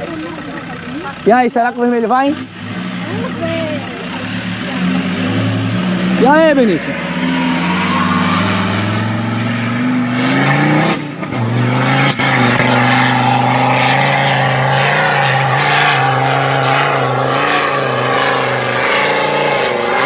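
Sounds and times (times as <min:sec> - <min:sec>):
off-road vehicle engine revving: 0:00.0 - 0:20.0.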